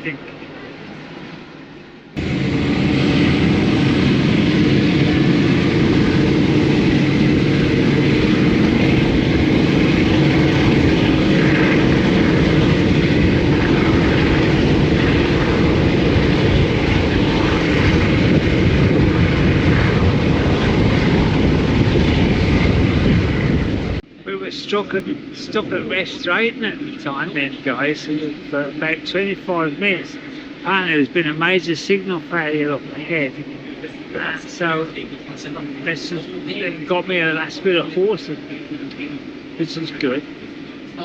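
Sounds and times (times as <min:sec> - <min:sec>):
rushing wind noise: 0:00.0 - 0:41.0
train wheels rumbling on rail: 0:02.2 - 0:24.0.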